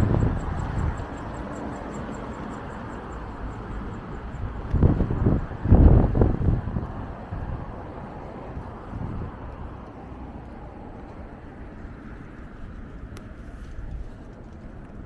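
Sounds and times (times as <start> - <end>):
wind on microphone: 0.0 - 2.2, 3.6 - 15.0
traffic rumble: 0.0 - 15.0.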